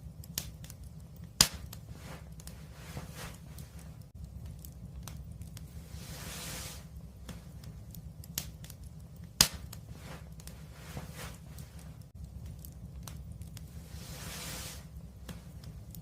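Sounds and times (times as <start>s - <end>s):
low steady rumble: 0.0s - 16.0s
wood fire crackling and popping: 0.0s - 16.0s.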